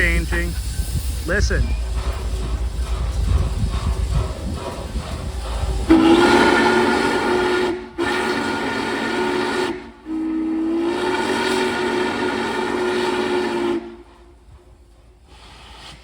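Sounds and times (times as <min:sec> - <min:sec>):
steam locomotive whistle blasts: 0:05.9 - 0:14.3.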